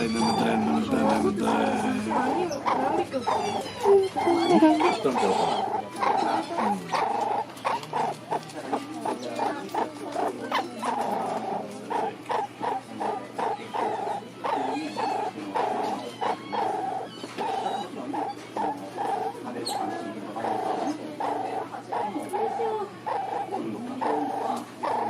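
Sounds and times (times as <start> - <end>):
pet animal vocalizing: 0.0 - 25.0.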